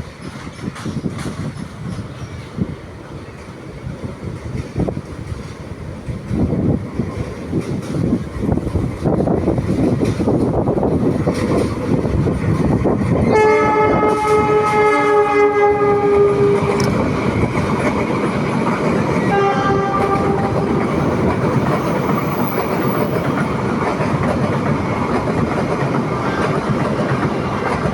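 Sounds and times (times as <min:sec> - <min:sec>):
train wheels clattering: 0:00.0 - 0:27.9
train horn: 0:13.2 - 0:16.9, 0:19.2 - 0:21.2.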